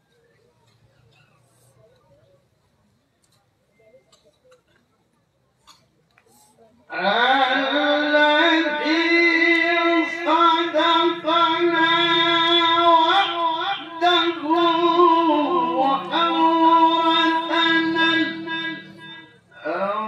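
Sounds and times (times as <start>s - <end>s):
man reciting melodically: 6.9s - 20.0s.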